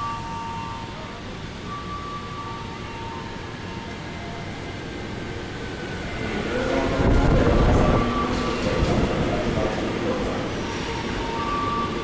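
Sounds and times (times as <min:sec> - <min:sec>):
electric train rumble: 0:00.0 - 0:12.0.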